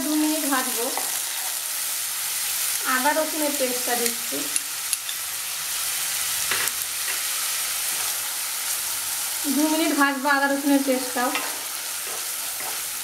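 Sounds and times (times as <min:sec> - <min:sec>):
paste sizzling in hot oil: 0:00.0 - 0:13.0
wooden spatula stirring: 0:11.3 - 0:13.0.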